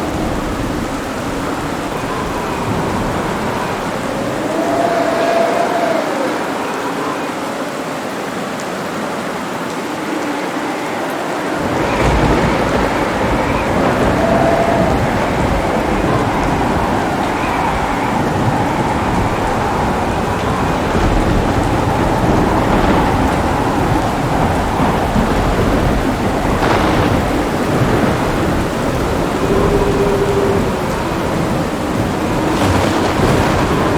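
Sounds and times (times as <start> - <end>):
thunder rumbling: 0.0 - 6.9, 10.2 - 33.9
heavy rain falling: 0.0 - 33.9.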